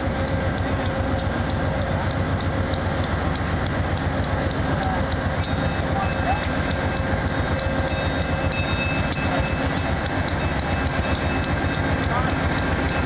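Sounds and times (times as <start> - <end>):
diesel locomotive rumbling: 0.0 - 13.0
rapid regular ticking: 0.0 - 13.0.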